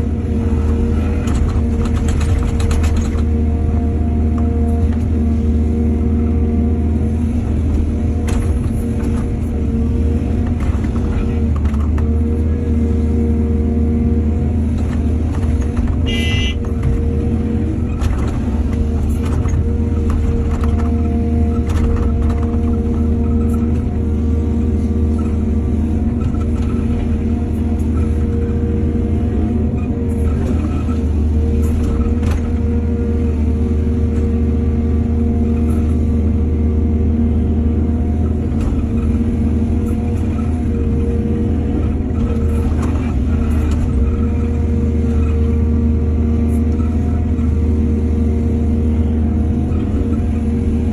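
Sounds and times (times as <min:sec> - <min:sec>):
excavator diesel engine rumbling: 0:00.0 - 0:50.9.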